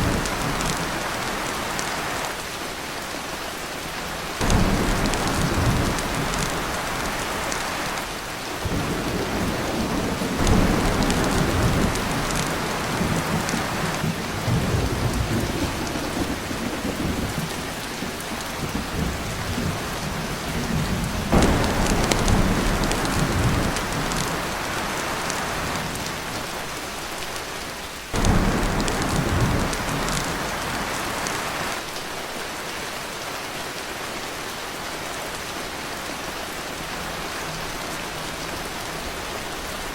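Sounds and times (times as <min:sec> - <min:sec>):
thunder rumbling: 0:00.0 - 0:01.8, 0:04.4 - 0:26.4, 0:28.2 - 0:31.8
heavy rain on a tin roof: 0:00.0 - 0:39.9.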